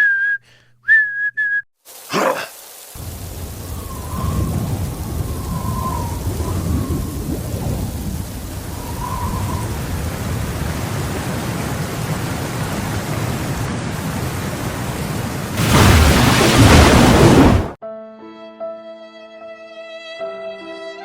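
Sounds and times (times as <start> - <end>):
steady rain: 1.8 - 17.8
low rolling thunder: 3.0 - 14.8, 15.5 - 17.8.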